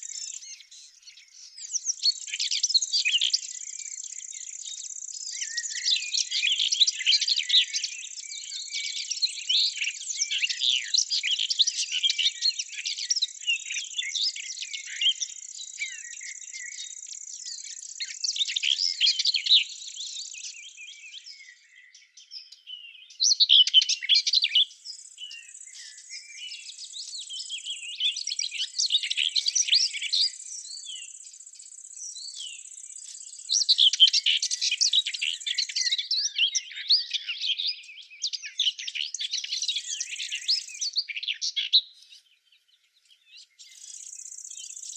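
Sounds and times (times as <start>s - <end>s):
songbirds chirping: 0.0s - 44.9s.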